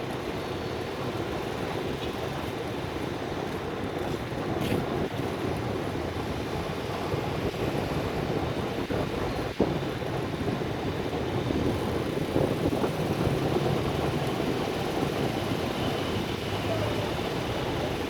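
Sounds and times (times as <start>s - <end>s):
passing traffic: 0.0s - 18.0s
wind on microphone: 3.8s - 18.0s.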